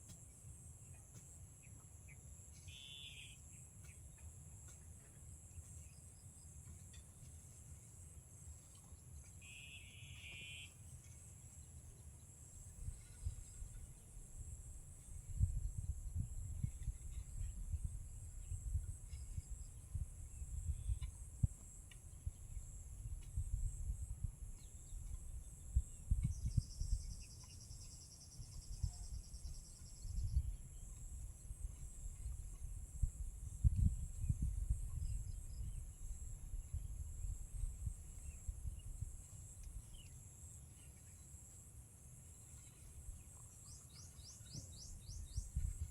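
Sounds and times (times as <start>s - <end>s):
insect buzzy call: 2.7s - 3.5s, 9.4s - 10.8s
insects chirping: 9.4s - 11.4s, 12.3s - 45.9s.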